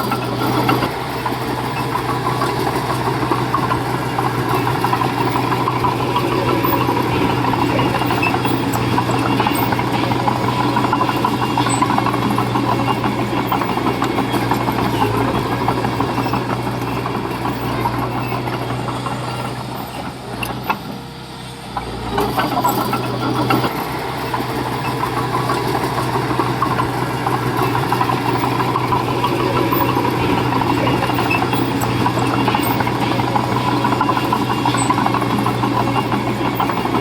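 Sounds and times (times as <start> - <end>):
diesel engine humming: 0.0 - 37.0.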